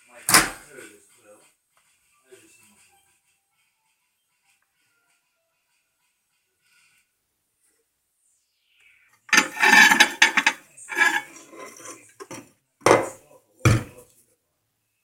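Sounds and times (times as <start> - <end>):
dishes clattering and scraping: 9.3 - 14.0.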